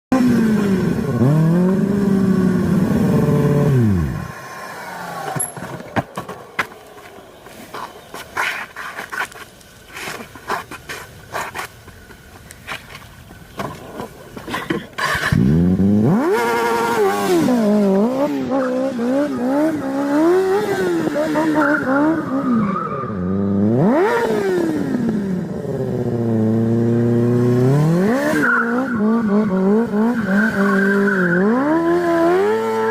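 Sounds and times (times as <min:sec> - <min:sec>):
motorcycle engine revving: 0:00.1 - 0:05.8, 0:14.9 - 0:32.9.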